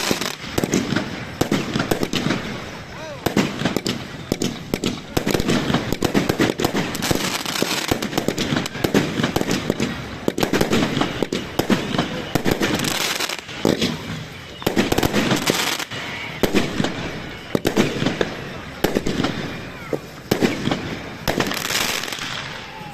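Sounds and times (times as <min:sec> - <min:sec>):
fireworks bangs and crackling: 0:00.0 - 0:22.9.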